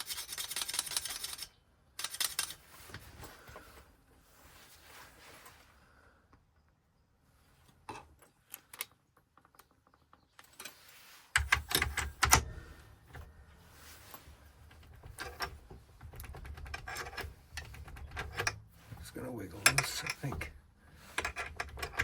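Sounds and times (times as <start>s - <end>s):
small metal parts clicking: 0.0s - 2.7s, 14.7s - 22.0s.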